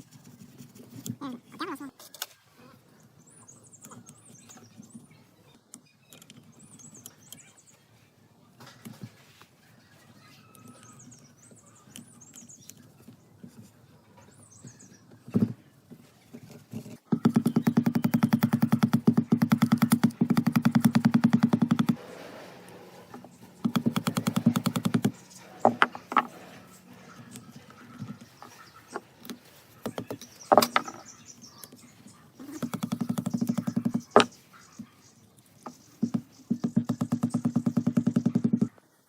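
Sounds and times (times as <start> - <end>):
machine rattling: 19.6 - 28.5.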